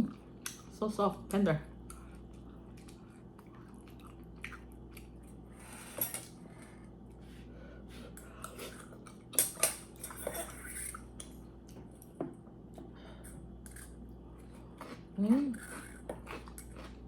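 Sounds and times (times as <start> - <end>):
quiet chewing: 1.8 - 17.0
utensils clinking against a bowl: 8.2 - 11.4.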